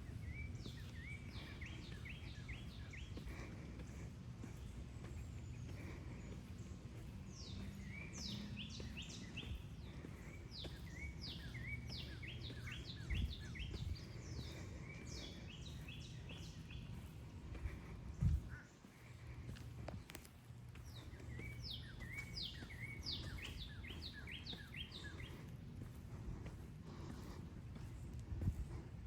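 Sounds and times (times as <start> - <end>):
songbird whistling: 21.3 - 25.4.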